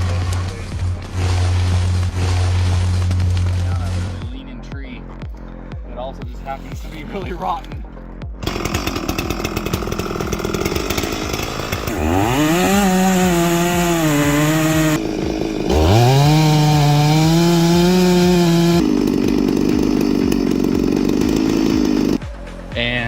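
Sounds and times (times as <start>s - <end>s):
chainsaw revving: 0.0s - 4.3s, 8.4s - 22.2s.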